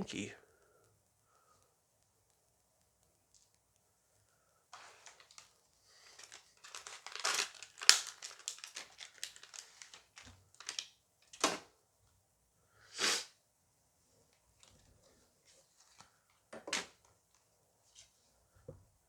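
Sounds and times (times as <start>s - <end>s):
pack rustling: 4.8s - 10.8s
foil pack crinkling and tearing: 4.8s - 11.5s.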